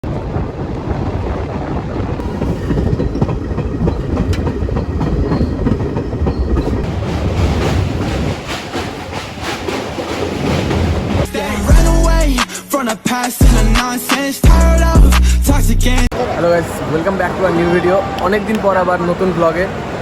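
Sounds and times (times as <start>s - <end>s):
train rumbling on rails: 0.0s - 11.7s
wheels clicking over track: 2.2s - 11.3s.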